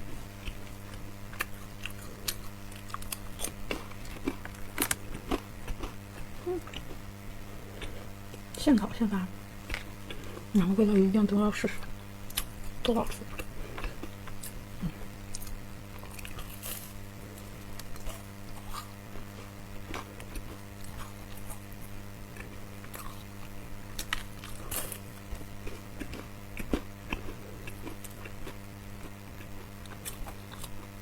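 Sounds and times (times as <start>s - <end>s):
steady low hum: 0.0s - 31.0s
crunching a crisp biscuit: 15.2s - 30.9s.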